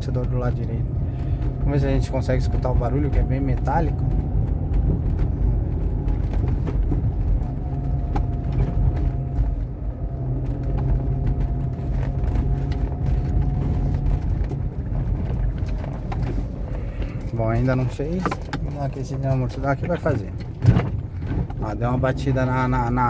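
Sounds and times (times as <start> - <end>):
car road rumble: 0.0 - 23.0.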